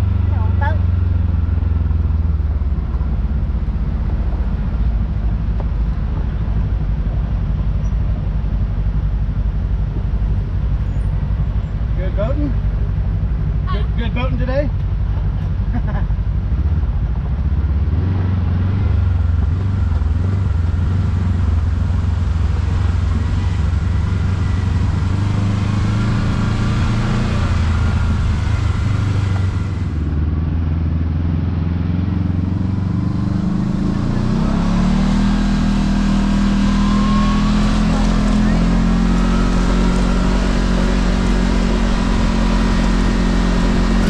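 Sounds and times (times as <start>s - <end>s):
vehicle engine running while driving: 0.0s - 44.0s.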